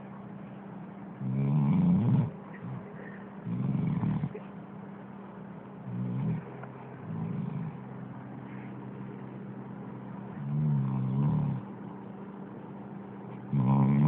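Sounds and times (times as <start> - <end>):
dog snoring: 1.2 - 4.5, 5.9 - 7.8, 10.3 - 11.7, 13.3 - 14.0.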